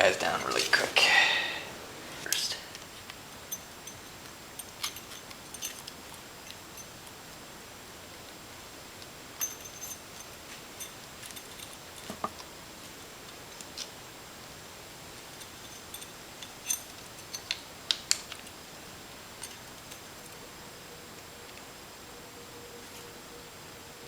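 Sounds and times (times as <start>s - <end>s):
small parts clicking and tapping: 2.3s - 7.2s, 9.0s - 12.6s, 15.2s - 20.4s.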